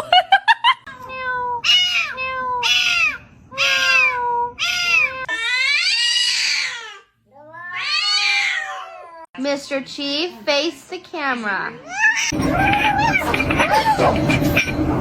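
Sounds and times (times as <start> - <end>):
cat meowing: 1.1 - 9.3.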